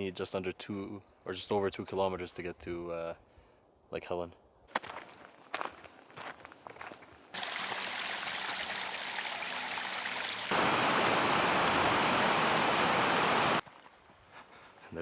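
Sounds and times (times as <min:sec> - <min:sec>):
footsteps on a trail: 0:04.7 - 0:07.4, 0:10.5 - 0:15.0
stream rushing: 0:07.4 - 0:13.6.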